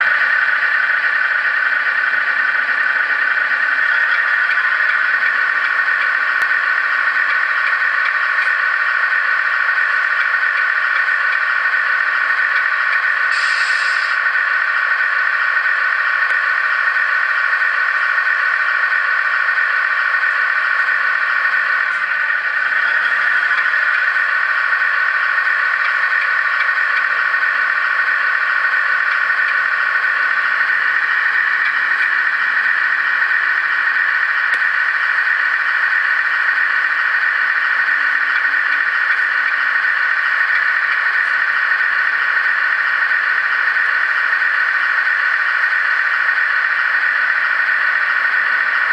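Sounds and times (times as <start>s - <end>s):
truck engine whine and rattle: 0.0s - 48.9s
short air hiss: 13.3s - 14.2s.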